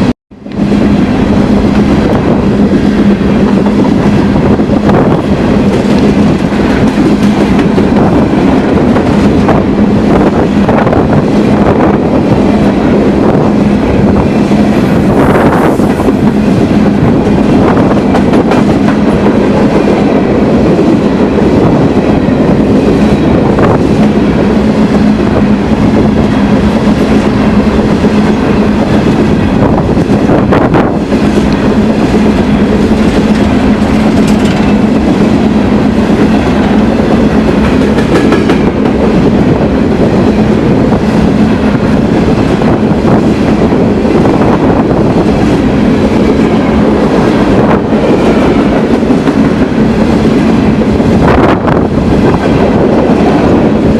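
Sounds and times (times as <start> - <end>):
train rolling past: 0.0 - 53.9
wheels clattering over rail joints: 33.9 - 34.8.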